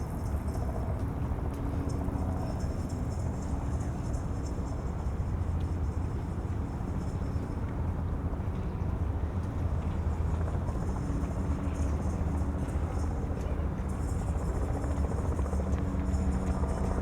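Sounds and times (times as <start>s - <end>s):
faint engine hum: 0.0s - 17.0s.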